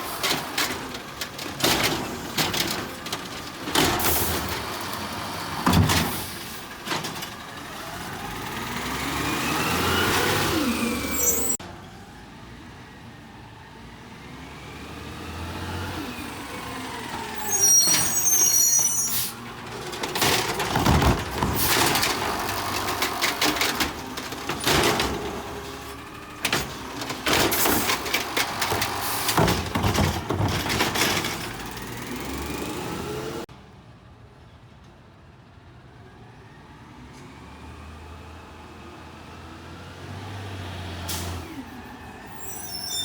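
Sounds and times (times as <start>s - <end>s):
clanking and banging: 0.2s - 5.0s, 5.6s - 7.5s, 19.8s - 32.3s
brake squeal: 9.8s - 11.6s, 16.0s - 19.6s, 41.0s - 43.0s.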